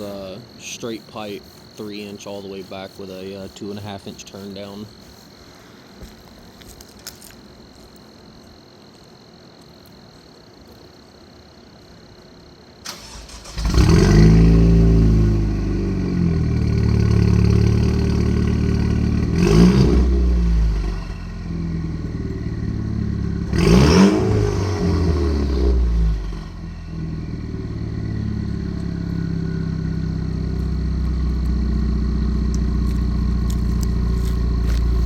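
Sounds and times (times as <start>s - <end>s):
car engine cranking: 12.9s - 14.1s, 30.6s - 35.0s
car engine idling and revving: 13.4s - 35.0s.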